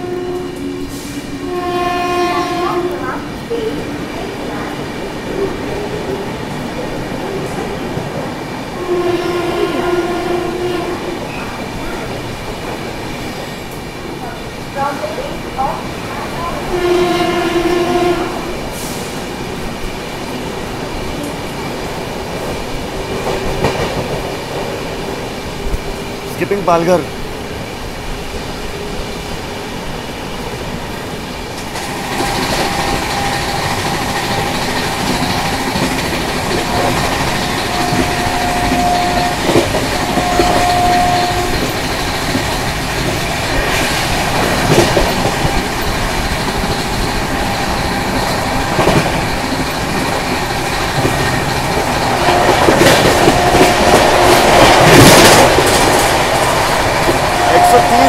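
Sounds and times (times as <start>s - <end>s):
train passing at speed: 0.0s - 58.0s.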